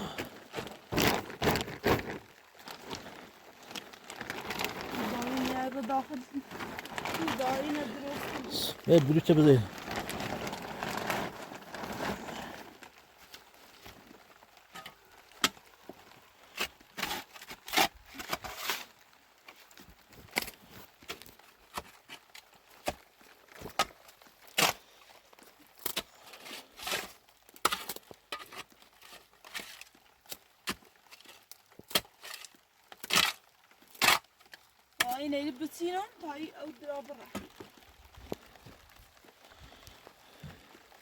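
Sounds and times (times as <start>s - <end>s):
rustle: 0.0s - 41.0s.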